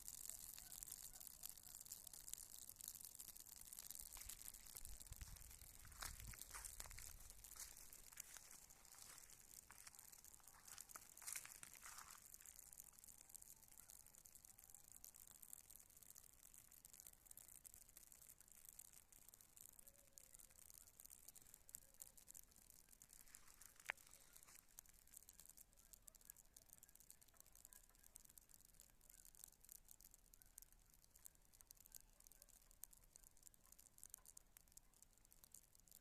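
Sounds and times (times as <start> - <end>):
fire pop: 0.0 - 16.6
campfire crackling: 0.0 - 36.0.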